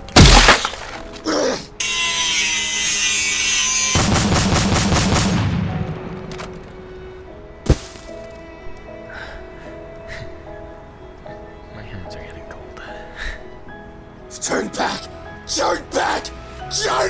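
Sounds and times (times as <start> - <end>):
loud fight impacts: 0.0 - 0.9
music: 0.0 - 17.0
sharp gunfire-like shots: 3.9 - 5.6.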